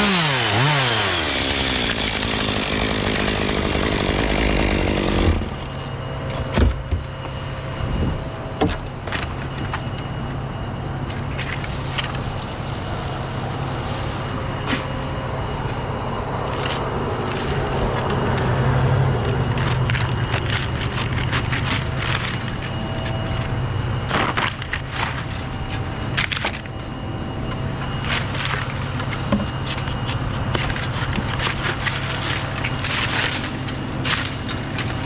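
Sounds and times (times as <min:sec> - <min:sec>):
chainsaw cutting palm fronds: 0:00.0 - 0:05.7, 0:30.6 - 0:35.0
low hum: 0:00.0 - 0:35.0.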